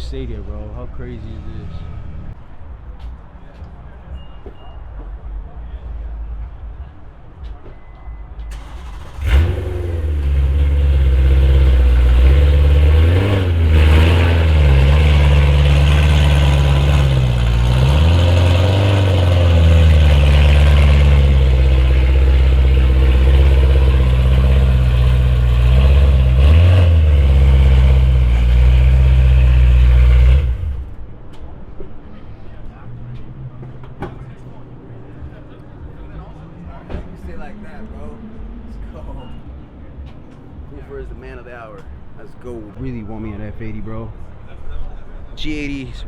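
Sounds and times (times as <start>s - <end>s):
car engine starting and idling: 8.4s - 31.1s
car engine revving: 8.5s - 31.0s.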